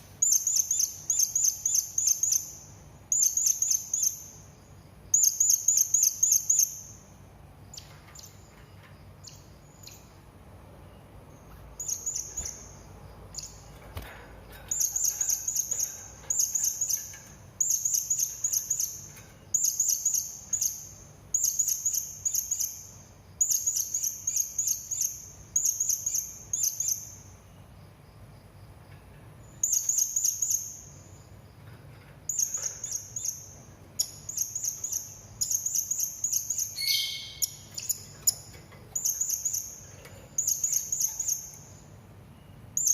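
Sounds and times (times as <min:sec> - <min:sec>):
parrot high-pitched chirps: 0:34.0 - 0:38.4.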